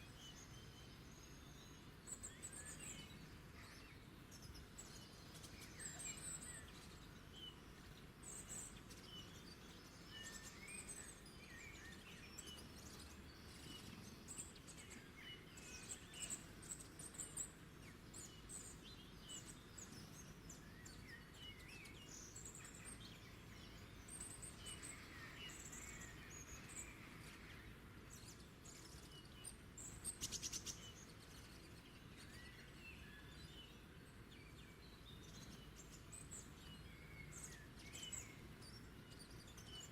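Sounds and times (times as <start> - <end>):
low background noise: 0.0 - 39.9
small birds chirping: 0.0 - 39.9.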